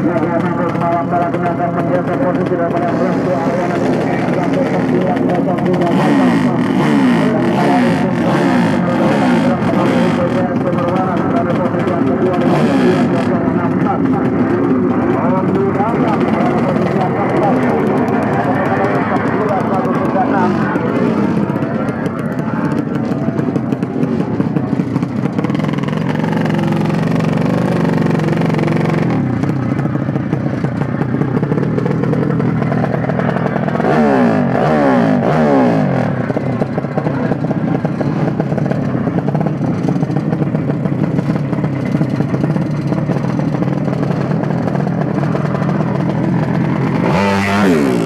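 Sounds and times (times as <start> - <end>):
motorcycle engines revving: 0.0 - 48.0.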